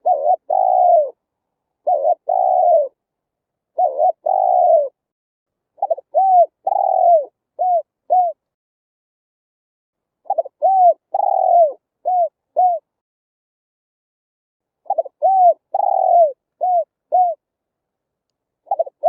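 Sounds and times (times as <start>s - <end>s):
dove cooing: 0.0s - 1.2s, 1.8s - 3.0s, 3.7s - 5.0s, 5.8s - 8.4s, 10.3s - 12.9s, 14.8s - 17.4s, 18.6s - 19.0s.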